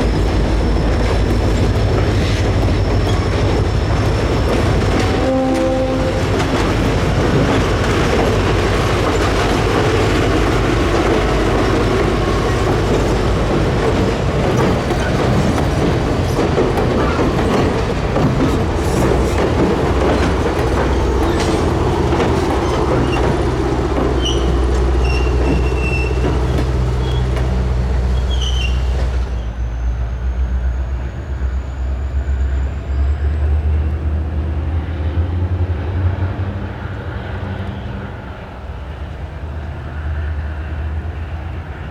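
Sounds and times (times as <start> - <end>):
wheels clicking over rail joints: 0.0 - 29.3
train engine and wheel rumble: 0.0 - 41.9
wheel squeals: 5.9 - 33.3.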